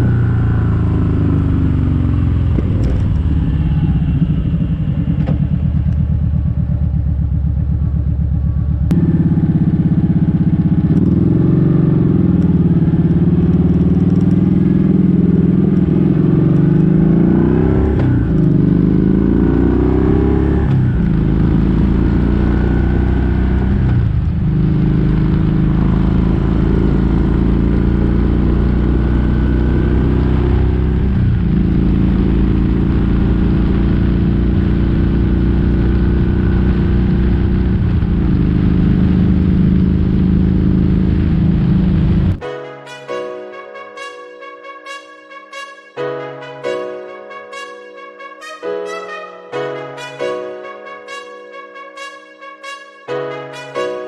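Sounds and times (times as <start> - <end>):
motorcycle engine accelerating: 0.0 - 42.4.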